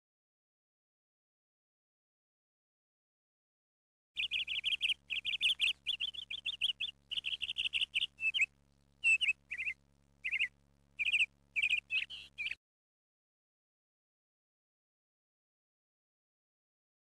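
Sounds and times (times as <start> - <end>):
small bird chirping: 4.2 - 12.6.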